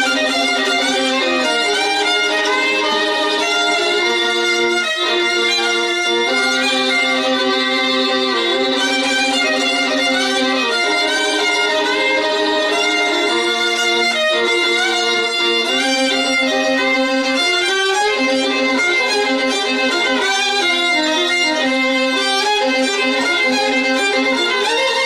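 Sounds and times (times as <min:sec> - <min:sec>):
violin music: 0:00.0 - 0:25.0.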